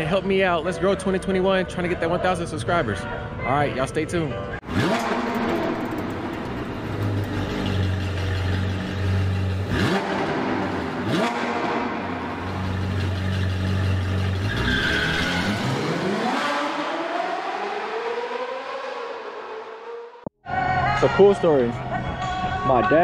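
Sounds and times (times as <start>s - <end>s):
car engines revving hard: 4.6s - 20.2s.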